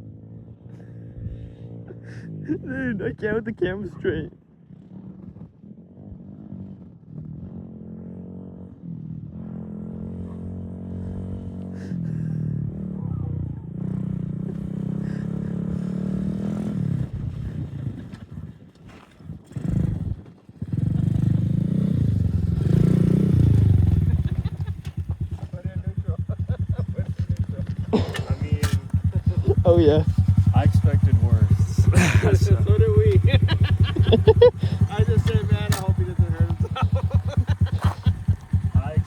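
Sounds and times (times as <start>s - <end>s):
dirt bike engine revving: 9.4s - 18.5s, 19.2s - 39.0s.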